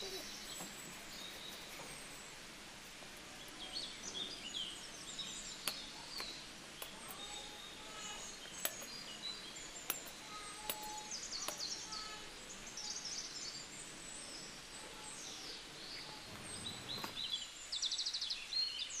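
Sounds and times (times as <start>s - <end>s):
steady hiss: 0.0s - 18.6s
small birds chirping and trilling: 0.0s - 19.0s
sharp clicks: 5.1s - 11.9s.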